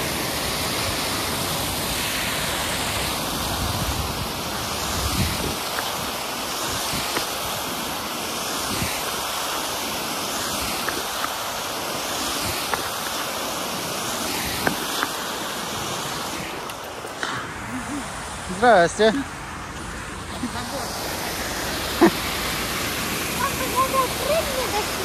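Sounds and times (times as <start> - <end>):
water pouring over waterfall: 0.0 - 16.7, 20.7 - 25.0.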